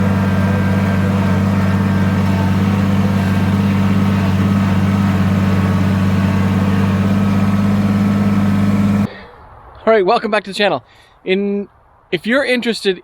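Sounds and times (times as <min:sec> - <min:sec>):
engine humming steadily: 0:00.0 - 0:09.1.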